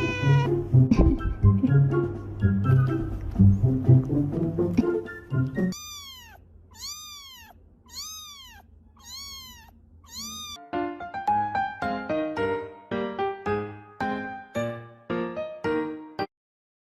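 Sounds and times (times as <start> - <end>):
cat meowing: 0.0 - 0.6, 5.7 - 10.6
music: 0.0 - 5.8, 10.6 - 16.3.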